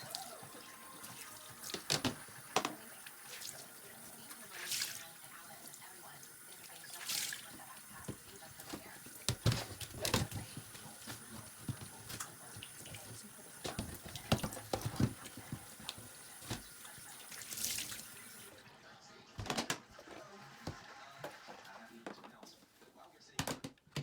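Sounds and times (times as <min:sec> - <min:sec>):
tap running into sink: 0:00.0 - 0:03.3, 0:07.4 - 0:18.5
hard items clattering in sink: 0:00.0 - 0:05.0, 0:06.9 - 0:18.3, 0:19.4 - 0:21.4.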